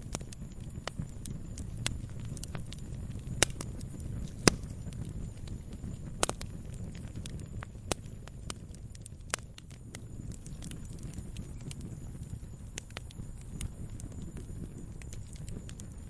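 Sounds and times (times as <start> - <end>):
campfire crackling: 0.0 - 16.0
wood popping and snapping: 1.8 - 7.2.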